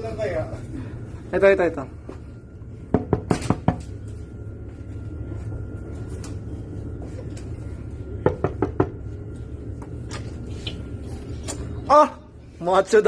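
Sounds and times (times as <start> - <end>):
steady low hum: 0.0 - 13.0
knocking on door: 8.2 - 9.0.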